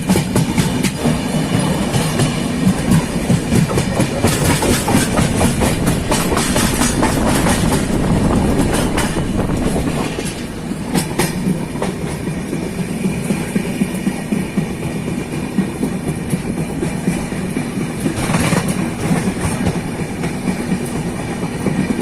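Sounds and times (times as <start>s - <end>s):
train rumble: 0.0s - 22.0s
wheels clicking over rail joints: 0.0s - 22.0s.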